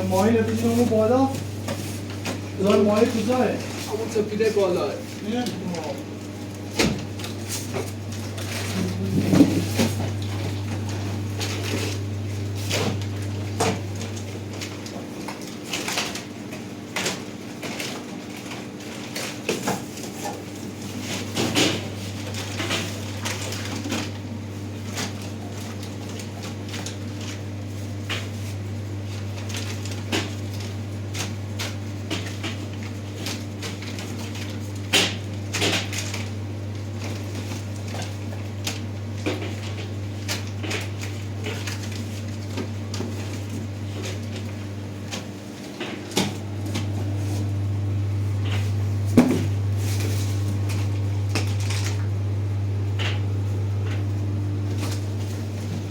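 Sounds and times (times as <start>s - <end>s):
packages knocking and clattering: 48.5s - 52.1s.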